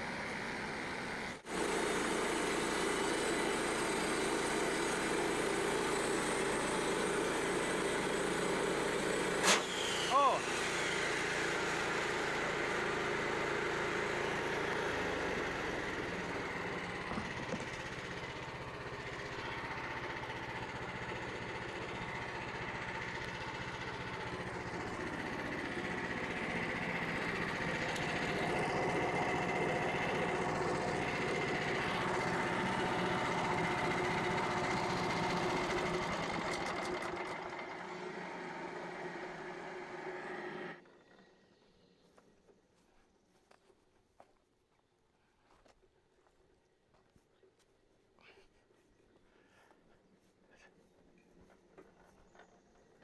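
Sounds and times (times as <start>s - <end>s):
bandsaw mill engine running: 0.0s - 42.1s
high whine of saw blade: 9.4s - 13.3s.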